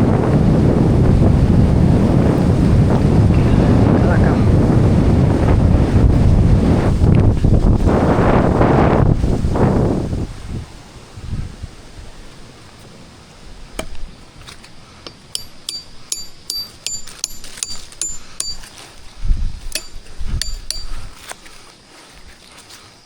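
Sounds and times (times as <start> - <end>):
wind on microphone: 0.0 - 12.5, 18.2 - 21.3
sharp metallic clinks: 15.1 - 19.1, 19.7 - 21.2.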